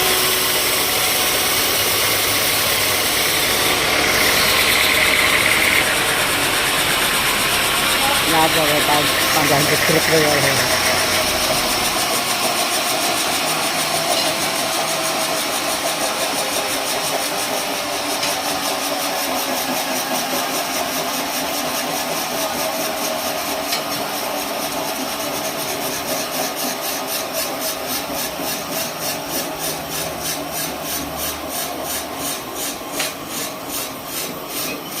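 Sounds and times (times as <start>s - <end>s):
engine running: 0.0s - 19.1s
regular pulsing: 0.2s - 12.3s.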